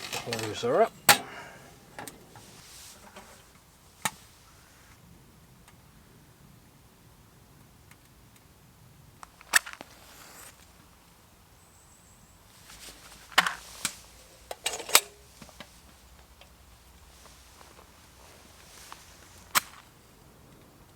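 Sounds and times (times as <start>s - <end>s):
stove clicks and snaps: 0.0s - 2.4s
soft hisses: 0.0s - 5.0s, 16.9s - 20.1s.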